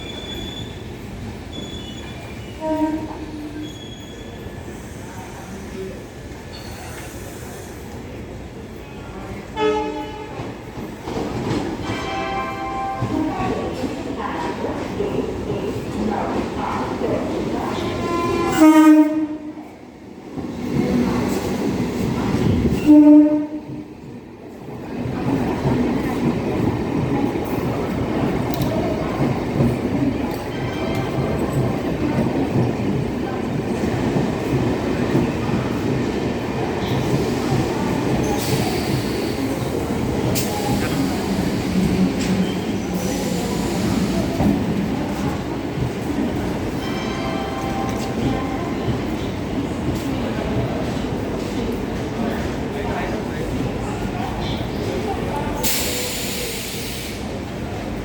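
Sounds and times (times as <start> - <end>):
moving train rumble: 0.0 - 58.0
locomotive horn blasts: 2.6 - 3.6, 9.6 - 10.4, 18.0 - 19.5, 22.8 - 23.7.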